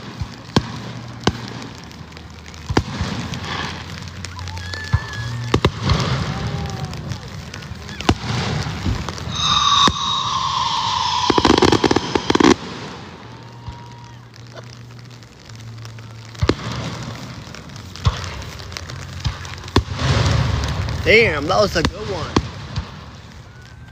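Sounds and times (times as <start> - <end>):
sharp firework bangs: 0.0 - 23.7
firework crackle: 0.0 - 23.9
whistling firework shell: 4.3 - 14.6.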